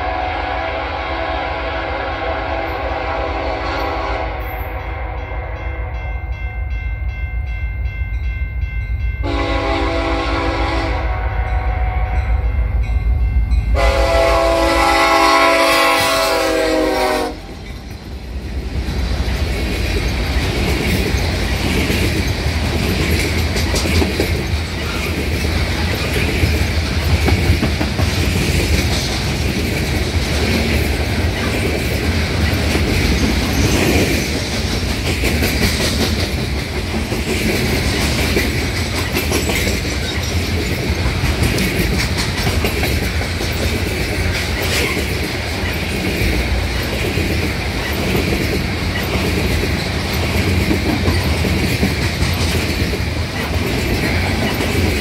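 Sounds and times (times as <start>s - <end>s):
locomotive air horn: 0.0s - 6.0s, 9.2s - 12.4s, 13.8s - 17.5s
freight train rolling past: 0.0s - 55.0s
wheels clacking over rail joints: 17.4s - 55.0s.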